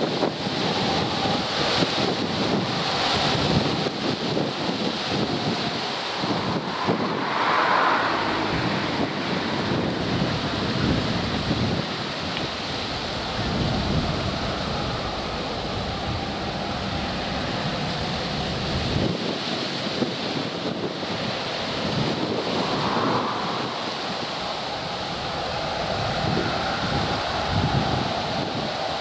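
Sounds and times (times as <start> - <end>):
jet engines roaring on take-off: 0.0 - 29.0
wind buffeting microphone: 0.0 - 29.0.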